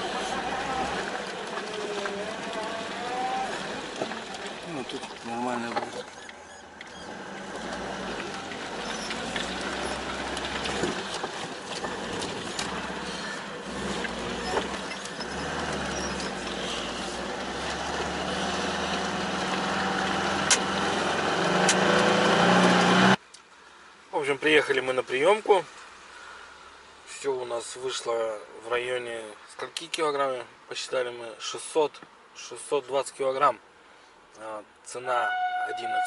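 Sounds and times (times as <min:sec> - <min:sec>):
car engine hum: 0:00.0 - 0:23.2
road noise: 0:00.0 - 0:36.0.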